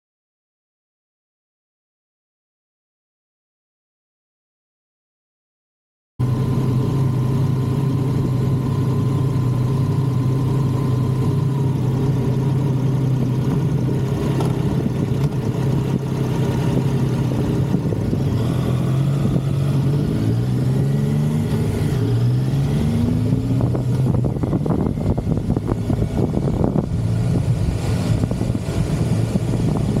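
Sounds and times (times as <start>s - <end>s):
motorcycle engine riding: 6.2s - 30.0s.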